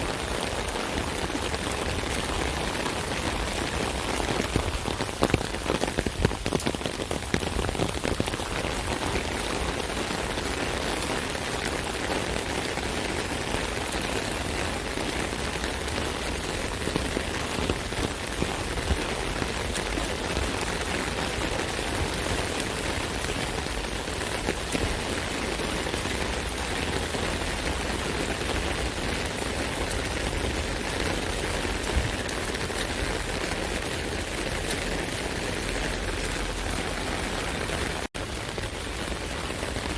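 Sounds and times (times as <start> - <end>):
rain pattering on an umbrella: 0.0 - 39.9.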